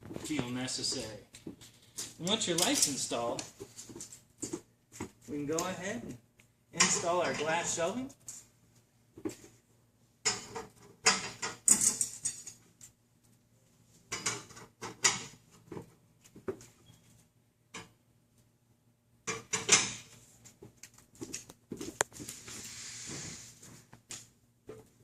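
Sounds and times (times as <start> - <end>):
glass shelves scraping: 22.3 - 23.8.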